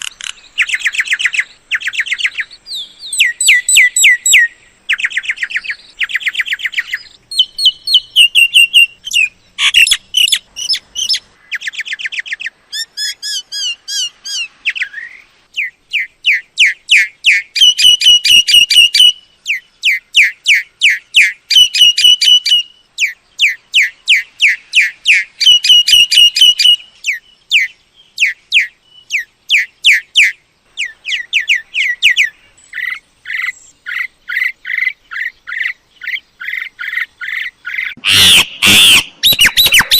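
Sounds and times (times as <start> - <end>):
myna whistling: 38.1 - 39.9.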